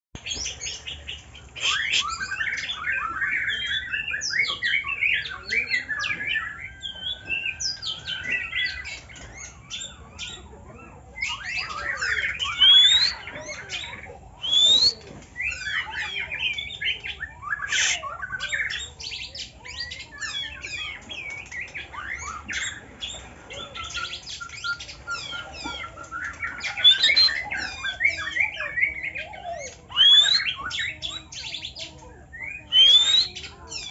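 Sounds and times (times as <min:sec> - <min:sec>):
songbird singing varied song: 0:00.2 - 0:33.9.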